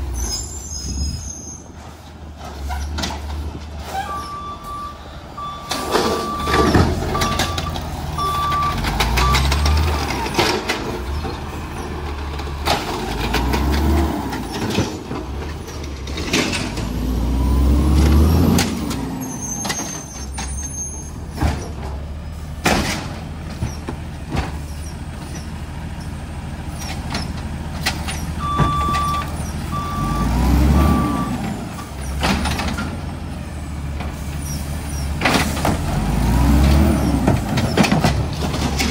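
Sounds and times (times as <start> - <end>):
reversing beeper: 4.0 - 9.7, 28.4 - 31.4
garbage truck engine revving: 5.2 - 20.0, 26.8 - 38.9.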